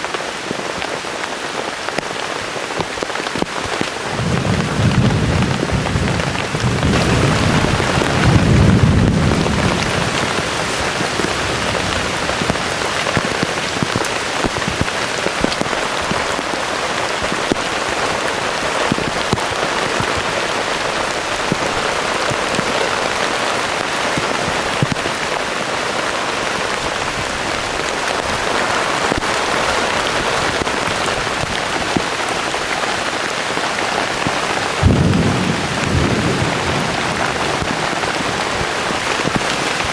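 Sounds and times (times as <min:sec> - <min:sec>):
heavy rain pouring: 0:00.0 - 0:39.9
low rumble of thunder: 0:04.1 - 0:13.0, 0:34.8 - 0:39.4.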